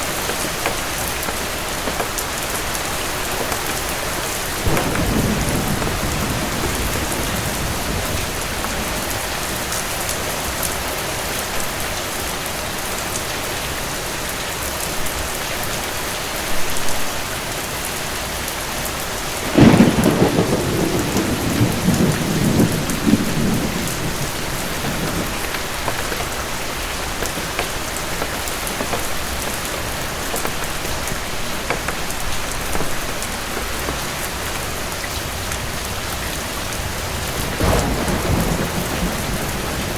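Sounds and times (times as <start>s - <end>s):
thunderclap rumbling: 0.0s - 10.3s, 19.4s - 39.9s
steady rain: 0.0s - 39.9s.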